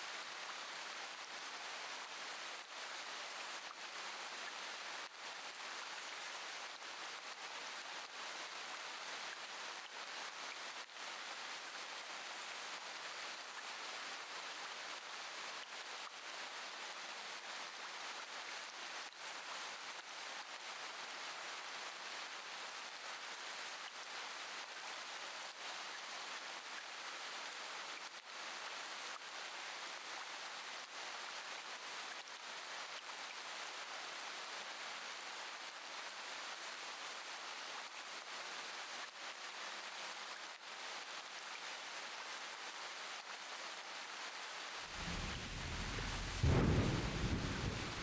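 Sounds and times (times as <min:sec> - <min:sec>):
steady rain: 0:00.0 - 0:48.0
low rumble of thunder: 0:44.9 - 0:48.0.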